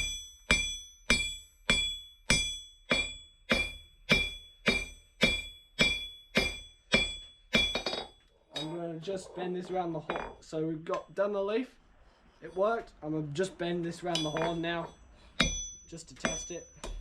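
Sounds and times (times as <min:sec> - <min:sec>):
hammer blows on anvil: 0:00.0 - 0:08.8, 0:14.1 - 0:17.0.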